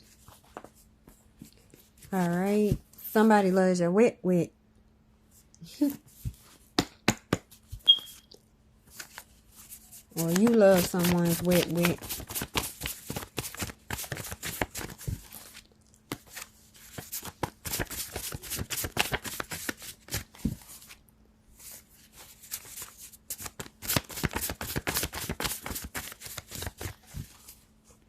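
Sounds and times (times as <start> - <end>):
cards being shuffled: 8.9 - 21.0, 21.6 - 27.8.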